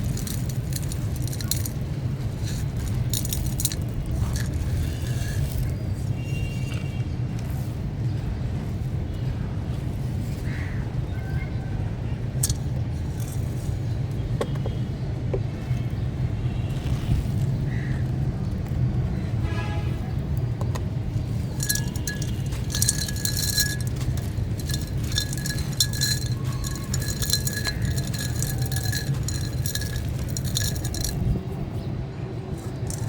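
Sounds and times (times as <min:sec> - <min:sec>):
stony chunks crumbling: 0:00.0 - 0:05.8, 0:21.3 - 0:31.4, 0:32.6 - 0:33.0.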